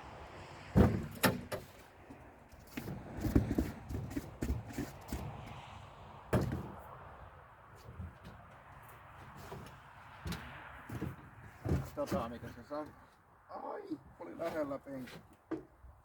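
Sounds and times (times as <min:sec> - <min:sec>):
knocks and clunks: 0:00.7 - 0:01.7, 0:09.4 - 0:13.0.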